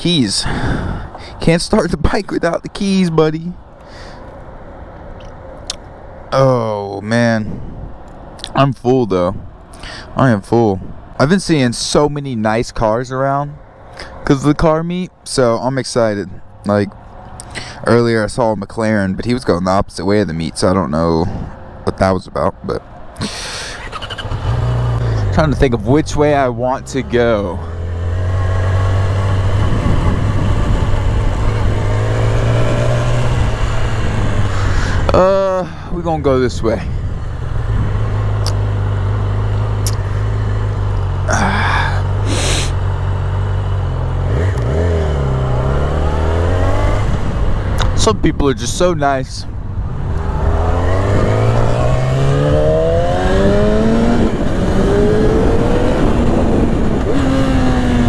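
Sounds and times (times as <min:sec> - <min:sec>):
wind on microphone: 0:00.4 - 0:01.5, 0:07.4 - 0:08.0, 0:27.7 - 0:40.0, 0:44.4 - 0:58.0
motorcycle engine running: 0:23.8 - 0:26.2, 0:26.8 - 0:35.7, 0:36.9 - 0:48.0.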